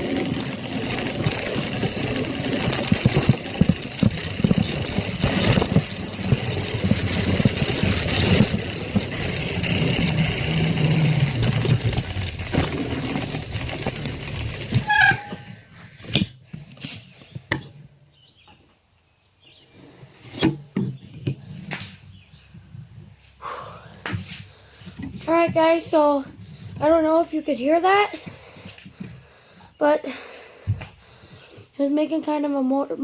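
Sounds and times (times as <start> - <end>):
faint motorbike engine: 0.0 - 16.3.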